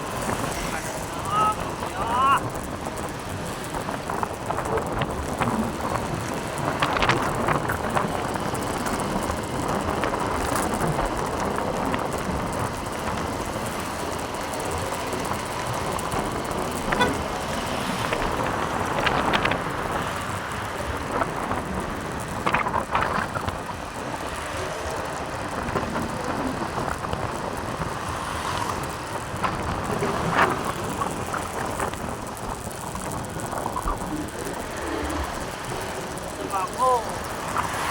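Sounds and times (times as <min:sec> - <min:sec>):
motorbike engine: 0:00.0 - 0:37.9
road noise: 0:00.0 - 0:37.9
wind noise: 0:00.0 - 0:37.9.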